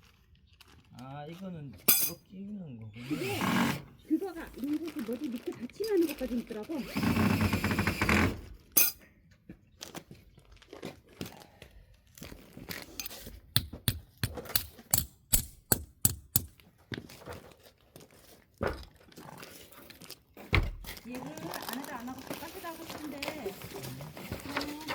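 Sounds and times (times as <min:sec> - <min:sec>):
plastic bag crinkling: 0:00.0 - 0:01.5, 0:04.1 - 0:06.8, 0:21.0 - 0:24.9.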